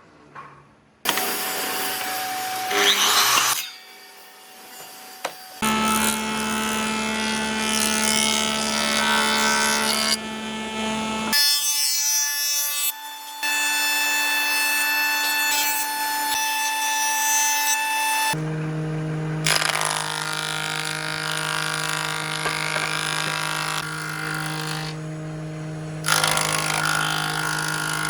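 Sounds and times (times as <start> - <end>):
rasping wood cutting: 4.6 - 11.4, 18.3 - 28.0.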